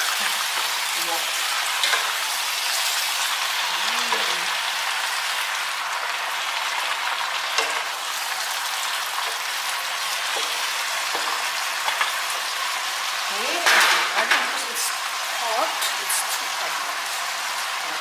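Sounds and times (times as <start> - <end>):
utensils clicking against pan: 0.0 - 3.0, 3.8 - 4.5, 7.4 - 8.1, 9.0 - 12.5, 13.4 - 14.7
cabbage sizzling in a pan: 0.0 - 18.0.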